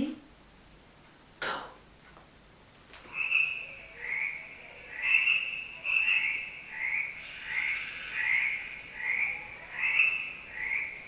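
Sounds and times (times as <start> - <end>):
tree frogs croaking: 3.0 - 11.0.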